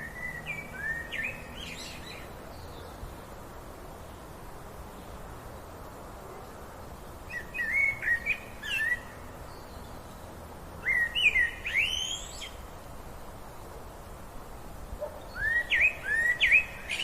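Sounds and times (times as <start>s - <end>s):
songbird whistled chirps: 0.0s - 2.9s, 7.3s - 10.2s, 10.8s - 12.6s, 15.2s - 17.0s
steady outdoor hiss: 0.0s - 17.0s.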